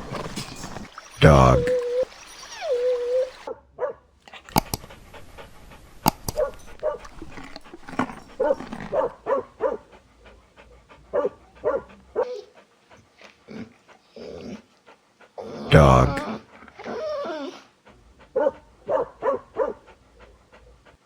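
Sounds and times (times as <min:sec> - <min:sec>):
dog barking: 0:01.2 - 0:09.9, 0:11.1 - 0:12.4, 0:18.4 - 0:19.9
sharp clicks: 0:04.4 - 0:09.0.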